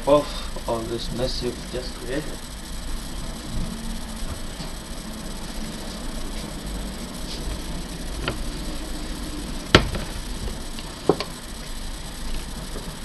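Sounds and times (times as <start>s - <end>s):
background hiss: 0.0s - 13.0s
hard object knocking: 9.8s - 10.1s.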